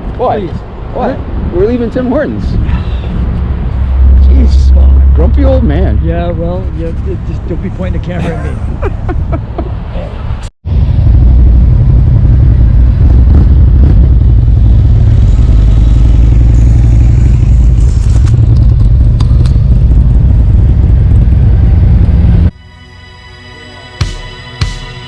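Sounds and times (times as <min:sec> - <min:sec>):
motorcycle engine riding: 0:10.7 - 0:22.6
background music: 0:22.6 - 0:25.0.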